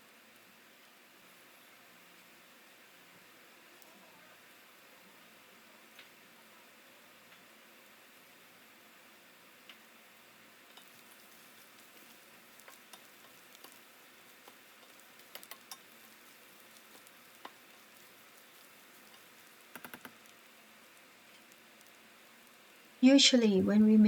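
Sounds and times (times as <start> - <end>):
food sizzling in a pan: 0.0 - 24.0
utensil clicking in pan: 10.7 - 20.4.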